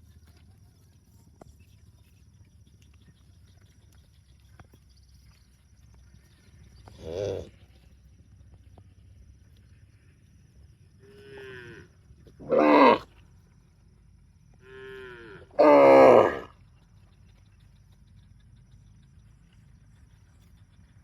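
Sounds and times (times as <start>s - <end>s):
cows mooing: 11.0s - 13.0s, 14.6s - 16.5s.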